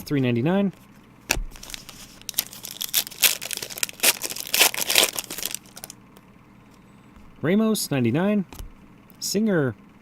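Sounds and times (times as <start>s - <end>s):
plastic wrapper crinkling and tearing: 1.5s - 6.0s.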